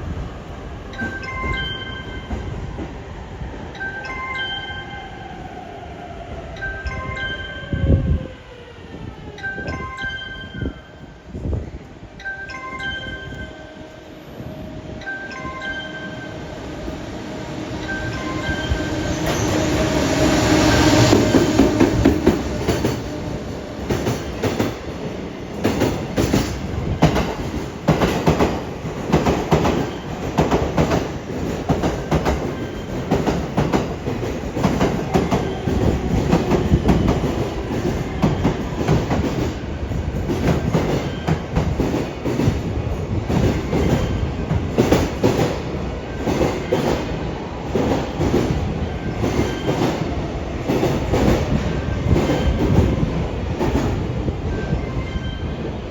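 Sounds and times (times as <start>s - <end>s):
train rumble: 5.0s - 55.9s
train wheels clattering over rail joints: 21.0s - 54.2s.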